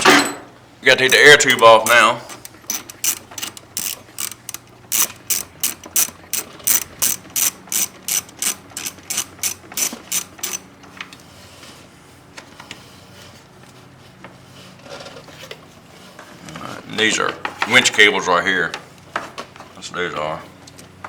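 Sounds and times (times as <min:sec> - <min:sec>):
ratchet wrench clicking: 0:01.0 - 0:10.6.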